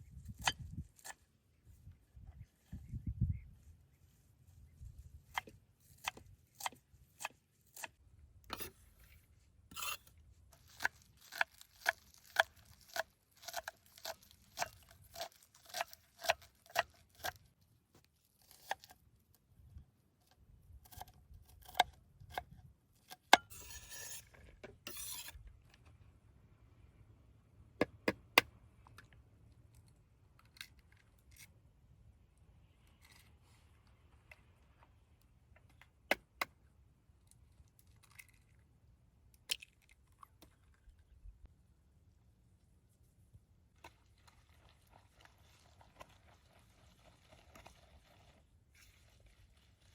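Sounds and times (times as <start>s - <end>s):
utensil scraping: 9.7s - 10.1s.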